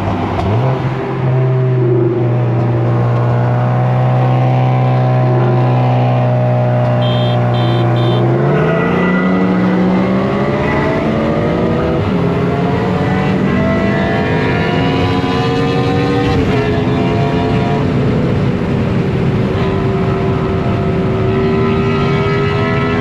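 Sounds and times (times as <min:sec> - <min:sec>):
car engine revving: 0:03.1 - 0:18.5
short high electronic beeps: 0:07.0 - 0:08.2.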